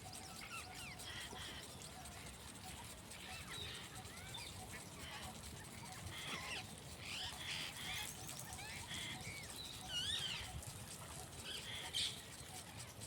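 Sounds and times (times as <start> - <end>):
sprinkler water spray hissing: 1.1 - 12.8.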